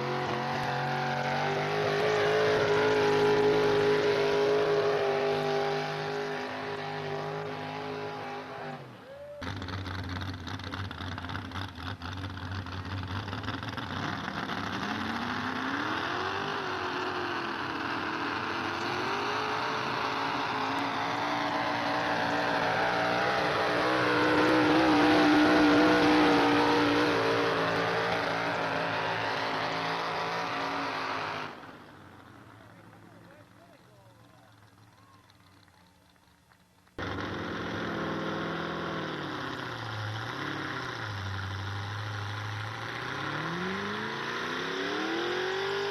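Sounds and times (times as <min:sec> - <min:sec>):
truck engine at high revs: 0:00.0 - 0:45.9
engine dropping in pitch: 0:37.0 - 0:45.9.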